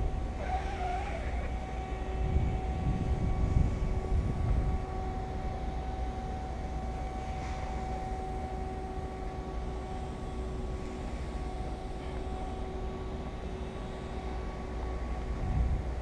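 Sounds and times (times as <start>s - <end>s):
low machine drone: 0.0s - 16.0s.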